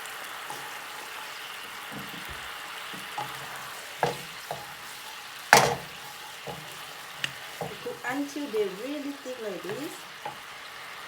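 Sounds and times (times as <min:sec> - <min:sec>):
sauce sizzling and bubbling: 0:00.0 - 0:11.0
utensil knocking against pan: 0:01.8 - 0:08.2, 0:09.7 - 0:10.5.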